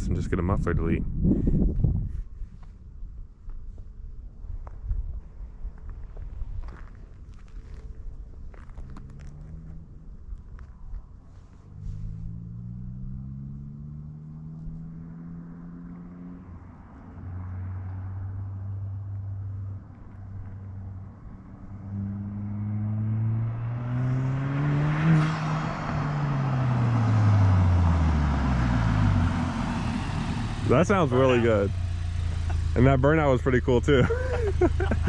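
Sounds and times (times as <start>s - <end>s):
car exhaust accelerating: 8.5s - 10.7s, 11.6s - 35.0s.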